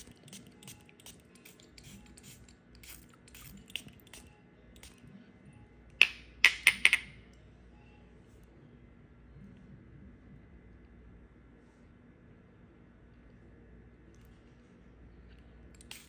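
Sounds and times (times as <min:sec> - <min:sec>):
sharp clinks of hard objects: 0:00.0 - 0:05.0.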